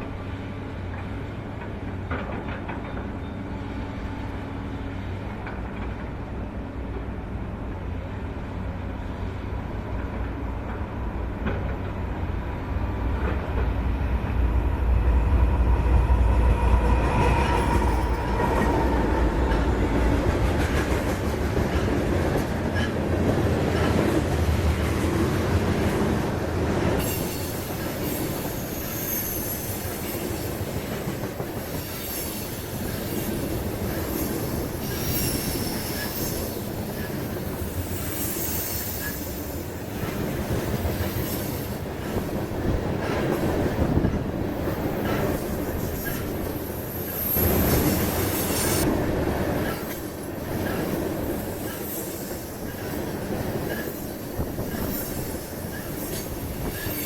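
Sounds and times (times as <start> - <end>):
freight train rumbling on rails: 0.0 - 57.0
wheel flange squeals: 27.0 - 30.5, 31.8 - 39.7.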